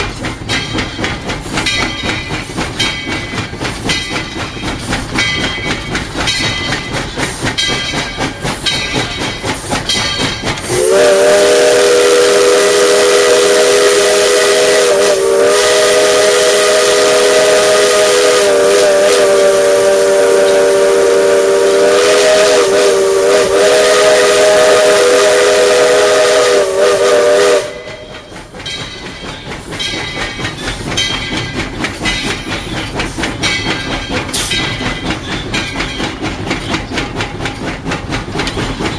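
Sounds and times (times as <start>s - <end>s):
locomotive rattling on track: 0.0s - 38.9s
steam whistle blowing: 10.7s - 28.3s.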